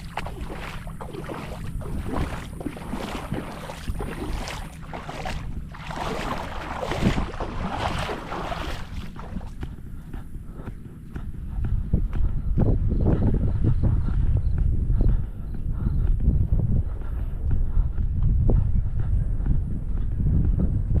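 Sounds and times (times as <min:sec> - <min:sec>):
small wave washing ashore: 0:00.0 - 0:09.5
wind buffeting microphone: 0:00.0 - 0:21.0.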